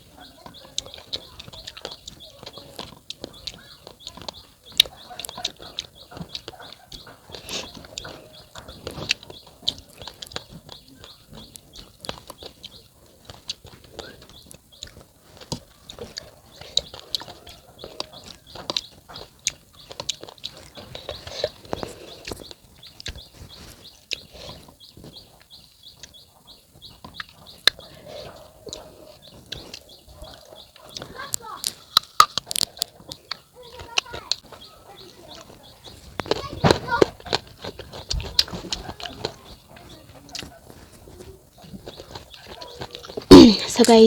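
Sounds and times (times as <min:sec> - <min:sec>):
crunchy chewing: 0:00.0 - 0:44.0
wet mouth sounds: 0:42.8 - 0:44.0.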